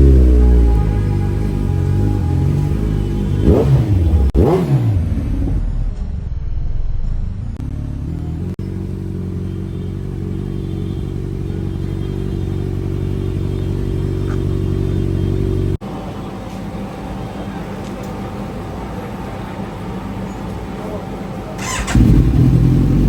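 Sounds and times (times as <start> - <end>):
motorcycle engine idling: 7.6 - 15.8, 21.6 - 23.0.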